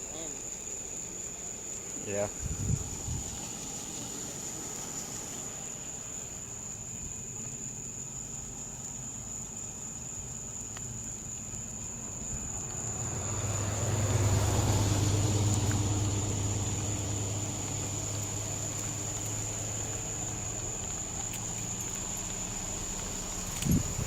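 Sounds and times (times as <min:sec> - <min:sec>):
vehicle passing by: 0:12.3 - 0:24.0.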